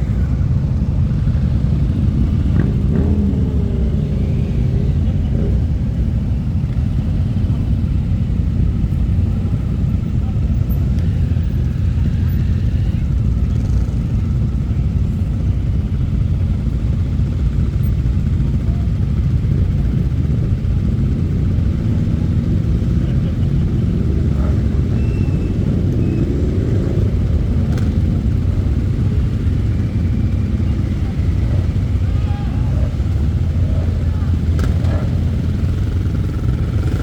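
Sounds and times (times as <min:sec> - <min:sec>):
motorcycle engine revving: 0:00.0 - 0:14.6, 0:15.8 - 0:37.0
motorcycle engines rumbling: 0:00.0 - 0:37.0.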